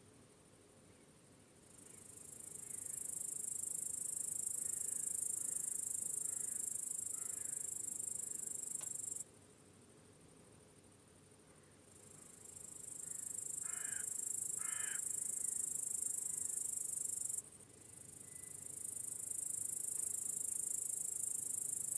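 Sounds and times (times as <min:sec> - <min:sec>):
crickets trilling: 0:01.8 - 0:09.2, 0:12.0 - 0:21.9.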